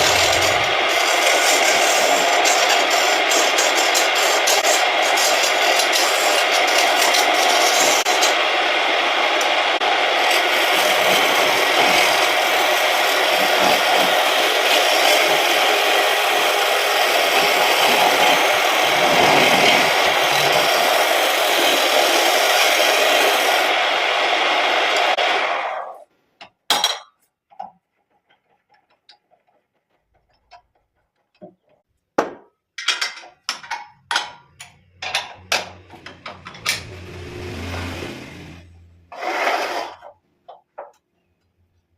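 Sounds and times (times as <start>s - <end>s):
lathe tool scraping wood: 0.0s - 25.9s, 36.0s - 40.2s.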